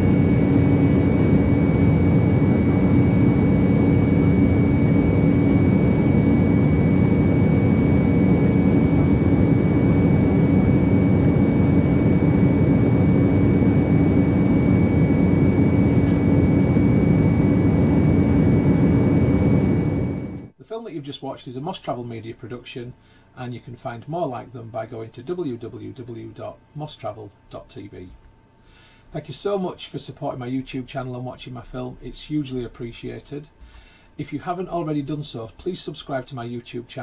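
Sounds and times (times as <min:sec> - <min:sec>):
jet engine drone in cabin: 0:00.0 - 0:20.6
thin high whine: 0:00.0 - 0:20.7.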